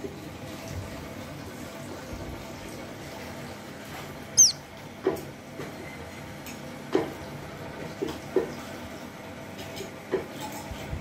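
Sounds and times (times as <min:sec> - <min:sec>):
nestling bird squeaking: 0:04.4 - 0:04.6
soft short sounds: 0:04.4 - 0:04.6.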